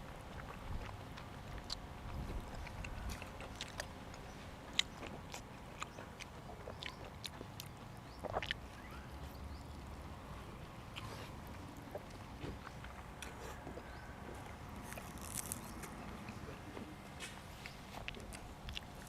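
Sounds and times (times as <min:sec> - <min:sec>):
person chewing food: 0:00.0 - 0:19.0
wet mouth clicks and smacks: 0:00.4 - 0:08.9.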